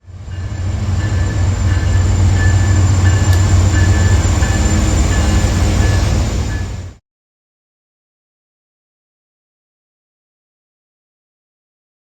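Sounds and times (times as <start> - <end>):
train running by: 0.0 - 7.0.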